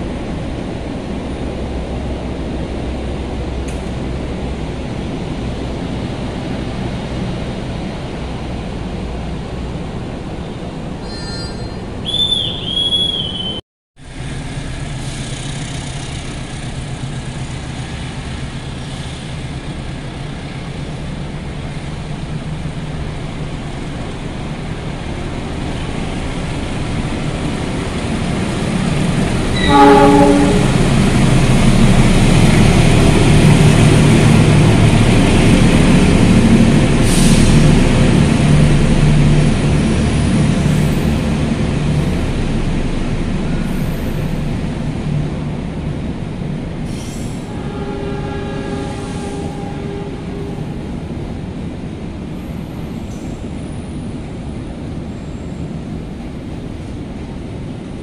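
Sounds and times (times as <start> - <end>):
train rumbling past: 0.0 - 58.0
deep locomotive horn: 29.4 - 35.0, 47.4 - 51.4
high-pitched train horn blasts: 29.5 - 31.0, 47.5 - 51.0.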